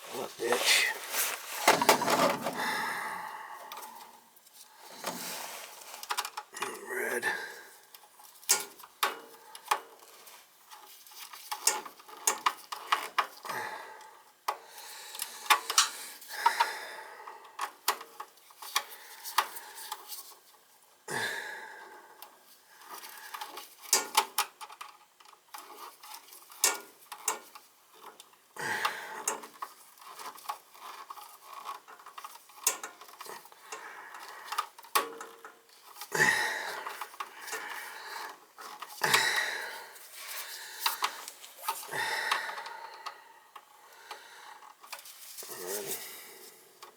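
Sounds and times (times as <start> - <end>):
rustling: 0.0 - 3.0, 36.7 - 41.9, 44.6 - 46.6
tools clicking and scraping on wire: 7.9 - 13.5, 15.2 - 16.0, 22.2 - 28.5, 29.2 - 36.1.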